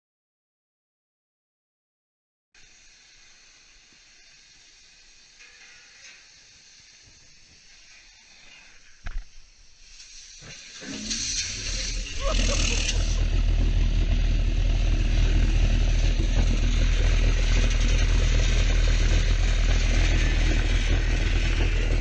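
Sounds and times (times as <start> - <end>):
rushing hiss: 2.6 - 22.0
engine running with low hum: 10.5 - 22.0.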